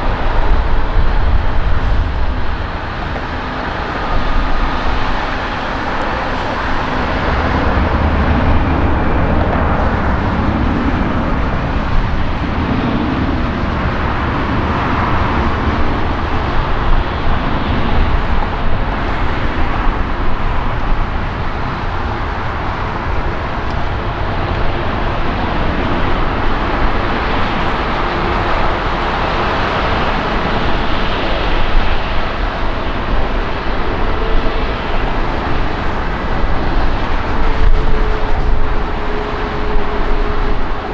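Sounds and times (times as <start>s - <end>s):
jet engines roaring: 0.0s - 40.9s.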